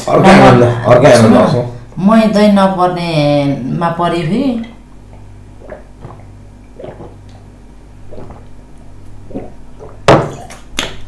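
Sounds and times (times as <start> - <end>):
soft eating mouth sounds: 5.0 - 7.5, 8.1 - 10.8.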